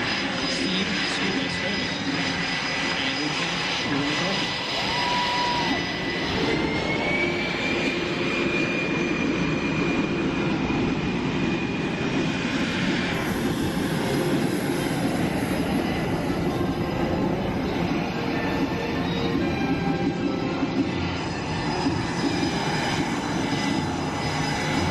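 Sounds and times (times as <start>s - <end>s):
aircraft engines roaring: 0.0s - 24.9s
high engine whine: 0.0s - 24.9s
higher whine: 0.3s - 24.9s.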